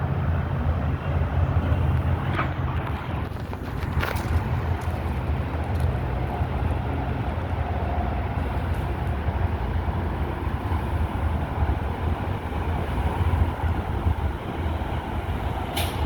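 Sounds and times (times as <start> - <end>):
garbage truck engine rumbling: 0.0 - 16.0.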